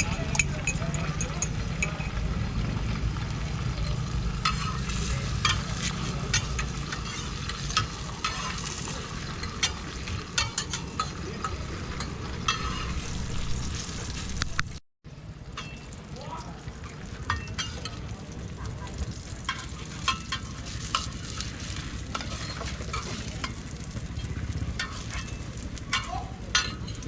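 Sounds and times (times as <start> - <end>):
flatbread sizzling in oil: 3.1 - 27.0
metal spatula tapping and scraping: 4.4 - 13.8, 17.2 - 18.1, 19.4 - 27.0.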